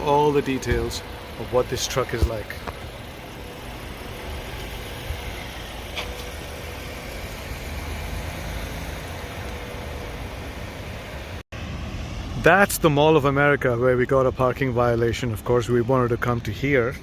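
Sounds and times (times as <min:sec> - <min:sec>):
engine idling: 0:00.0 - 0:11.4.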